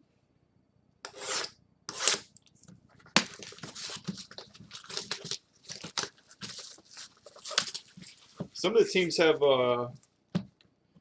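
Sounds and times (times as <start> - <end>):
wrapper tearing and crinkling: 3.2 - 8.4.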